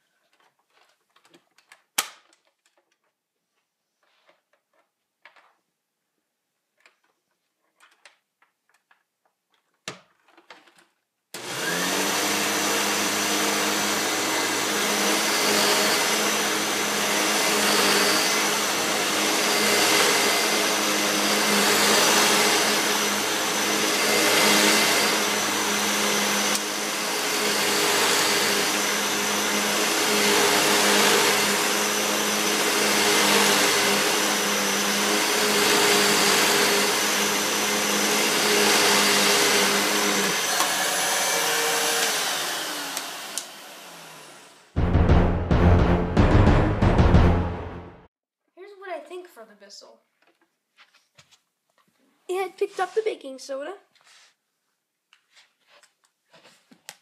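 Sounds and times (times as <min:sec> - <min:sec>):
upright vacuum cleaner running: 0:11.4 - 0:44.8.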